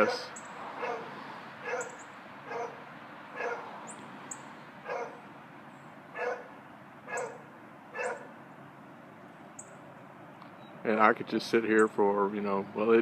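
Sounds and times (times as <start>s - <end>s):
dog barking: 0.0s - 2.8s, 3.4s - 3.7s, 4.8s - 5.2s, 6.2s - 6.5s, 7.1s - 8.3s.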